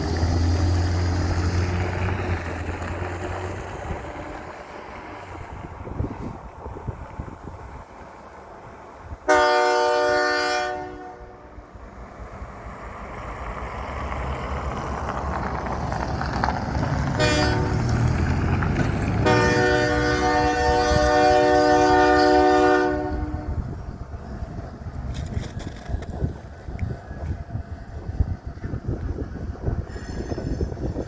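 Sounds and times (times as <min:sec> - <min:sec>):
low rumble of train: 0:00.0 - 0:31.0
locomotive horn blasts: 0:09.3 - 0:11.4, 0:17.2 - 0:18.0, 0:19.2 - 0:23.6.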